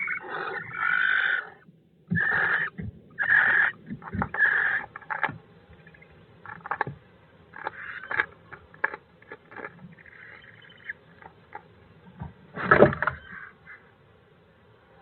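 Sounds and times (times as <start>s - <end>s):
barn owl hissing screeches: 0.0s - 5.2s.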